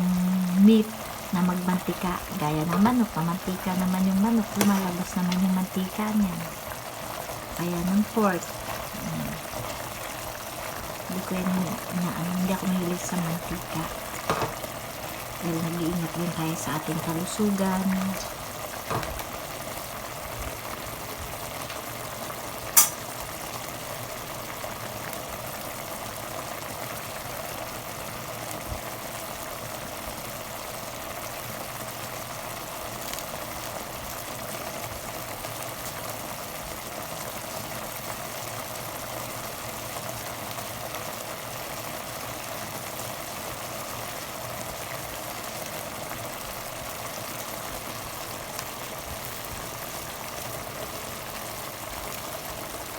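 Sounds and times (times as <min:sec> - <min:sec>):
food simmering and sizzling in pot: 0:00.0 - 0:52.9
sharp clack: 0:22.8 - 0:23.1.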